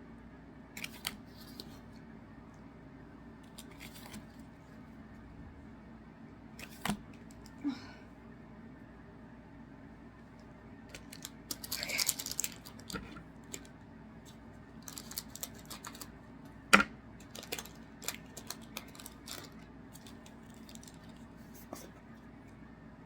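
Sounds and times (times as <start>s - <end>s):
foil wrappers crinkling: 10.9s - 13.7s, 14.8s - 16.1s, 17.2s - 21.4s.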